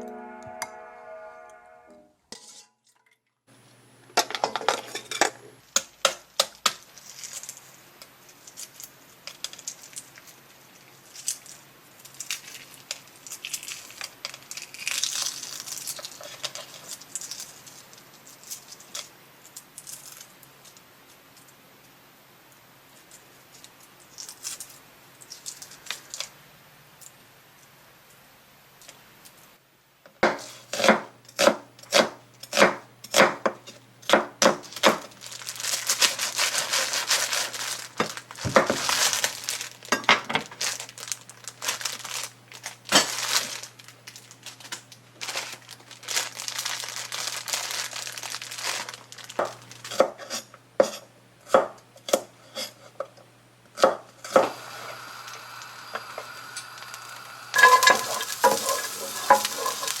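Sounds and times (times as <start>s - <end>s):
plastic packaging crinkling: 6.9s - 10.4s, 11.0s - 19.0s, 34.6s - 50.0s, 54.5s - 60.0s
knife chopping on cutting board: 30.2s - 35.0s
food sizzling in a hot pan: 54.4s - 60.0s
utensils knocking: 57.5s - 60.0s.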